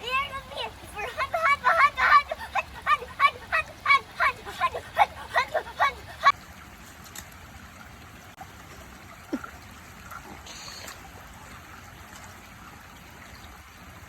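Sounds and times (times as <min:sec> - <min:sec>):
stream trickling: 0:00.0 - 0:14.0
short hiss: 0:10.5 - 0:11.0.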